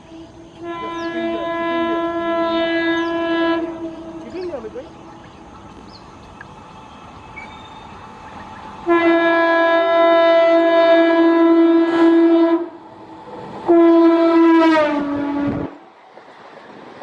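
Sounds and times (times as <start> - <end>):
train horn blasts: 0.0 - 5.2, 6.9 - 12.9, 13.6 - 15.8
train running rumble: 0.0 - 17.0.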